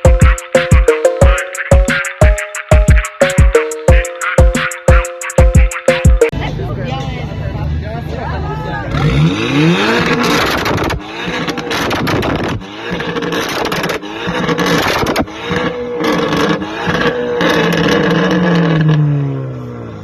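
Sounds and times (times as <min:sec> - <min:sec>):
car engines revving hard: 0:08.8 - 0:20.0.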